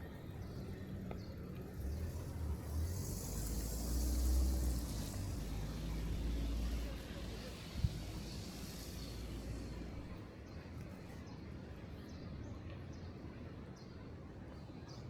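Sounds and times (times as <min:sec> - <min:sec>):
tyres hissing on wet pavement: 0:01.8 - 0:10.2.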